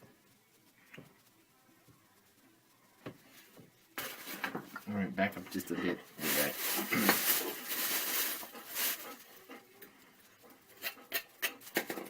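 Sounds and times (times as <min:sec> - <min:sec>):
dog sniffing: 0:05.8 - 0:09.8.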